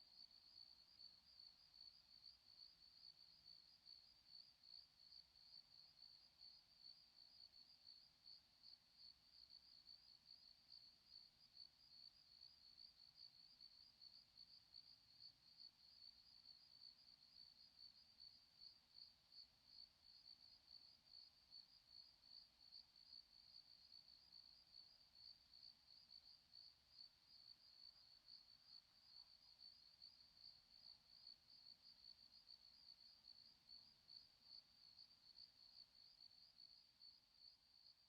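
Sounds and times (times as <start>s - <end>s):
cricket chirping: 0.0s - 38.0s.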